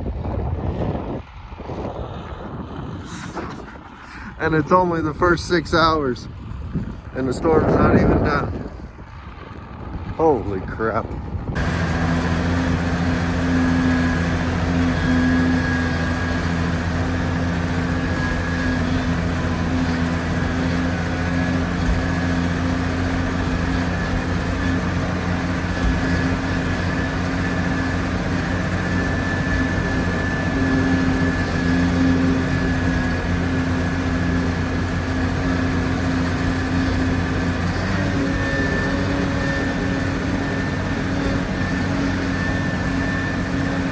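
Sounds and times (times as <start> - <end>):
engine humming with whine: 0.0 - 43.9.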